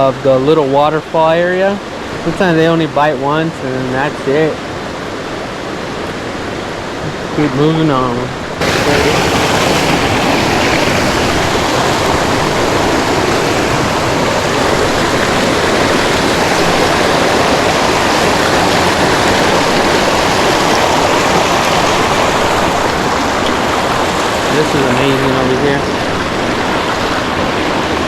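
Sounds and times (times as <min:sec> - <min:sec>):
creek water rushing over rocks: 0:00.0 - 0:28.0.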